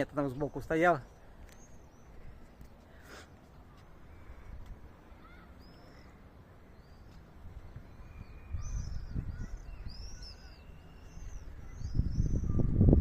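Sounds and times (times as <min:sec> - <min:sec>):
small birds chirping: 0:00.0 - 0:13.0
low rumble on microphone: 0:11.2 - 0:13.0.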